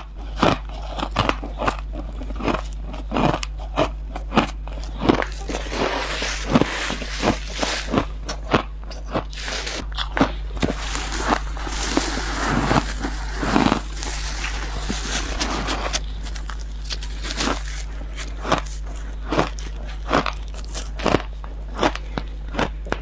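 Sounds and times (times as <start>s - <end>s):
person crunching ice: 2.0s - 23.0s.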